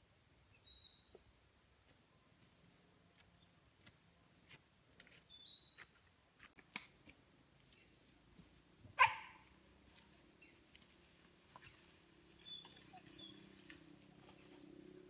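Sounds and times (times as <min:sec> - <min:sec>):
faint bird chirps: 0:00.5 - 0:02.3, 0:05.3 - 0:06.2, 0:12.4 - 0:14.6
short animal bark: 0:09.0 - 0:09.4.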